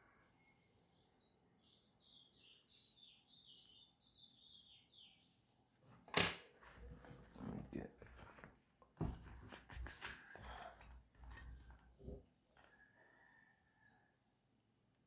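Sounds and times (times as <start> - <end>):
faint high bird chirping: 0.0 - 5.6.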